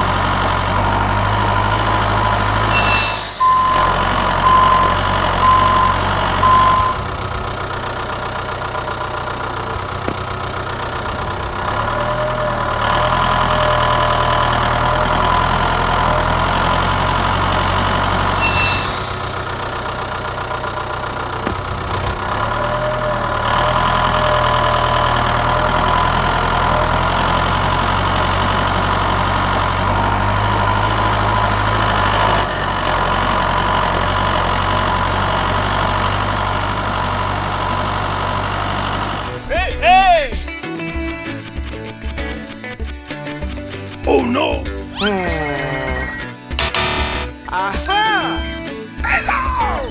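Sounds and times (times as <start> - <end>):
diesel engine idling: 0.0 - 40.4
reversing beeper: 0.9 - 7.2, 18.4 - 20.1, 45.0 - 49.9.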